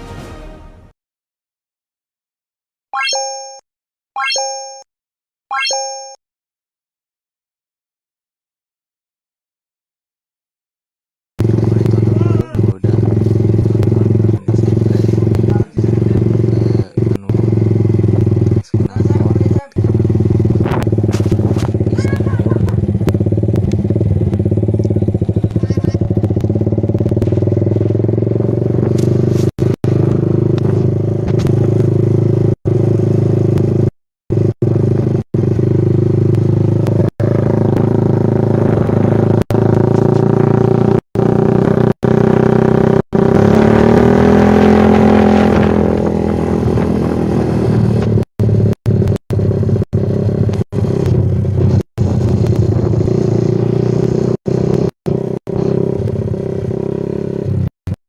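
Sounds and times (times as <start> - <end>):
motorcycle engine revving: 11.4 - 57.7.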